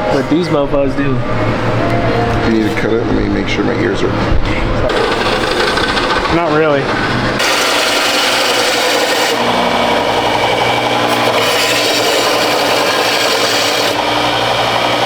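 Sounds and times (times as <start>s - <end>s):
power tool cutting steel pipe: 4.9s - 15.0s.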